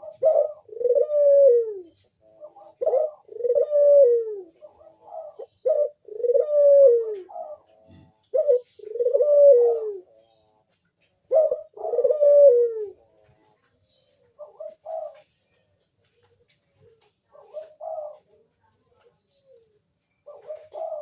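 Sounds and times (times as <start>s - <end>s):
dove cooing: 0.0s - 15.5s, 16.2s - 21.0s.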